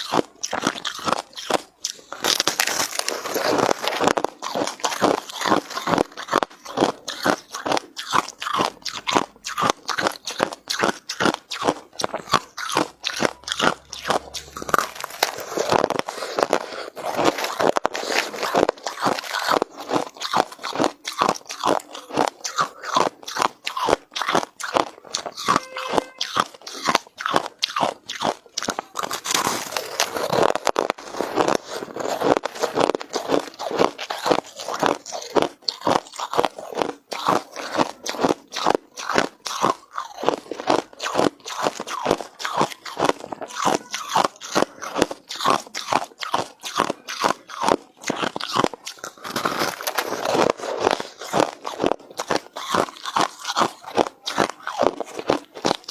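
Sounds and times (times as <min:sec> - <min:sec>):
teeth crunching ice: 0:00.0 - 0:55.9.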